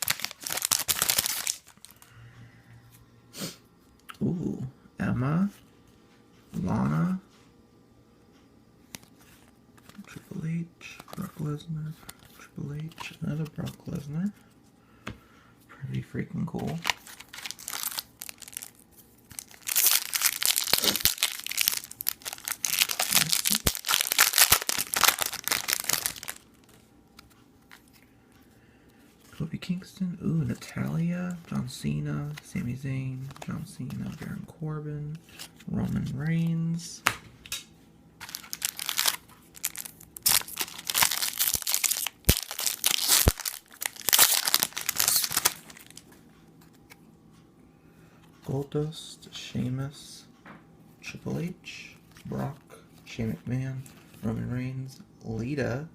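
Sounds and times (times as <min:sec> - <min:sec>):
foil wrapper tearing and crinkling: 0:00.0 - 0:02.0, 0:16.8 - 0:26.7, 0:38.2 - 0:46.0.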